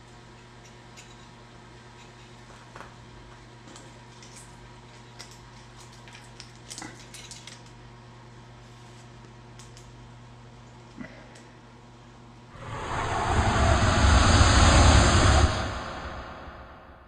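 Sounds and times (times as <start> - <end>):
steady low hum: 12.6 - 17.0.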